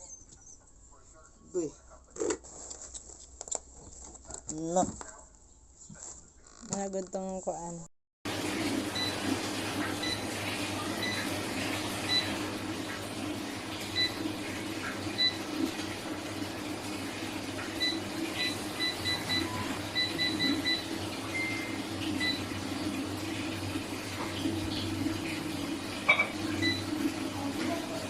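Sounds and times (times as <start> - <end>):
air fryer fan hum: 8.3 - 28.0.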